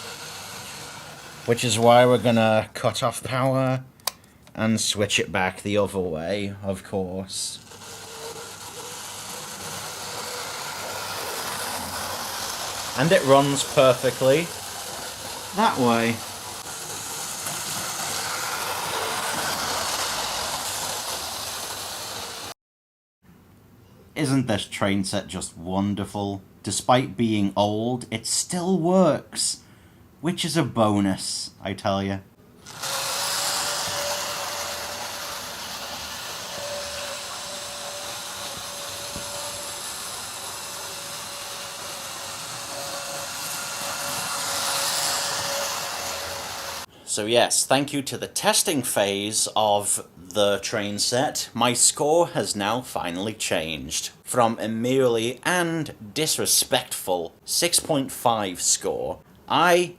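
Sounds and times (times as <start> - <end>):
model train motor whirring: 0.0 - 2.6, 7.4 - 22.5, 32.6 - 46.9.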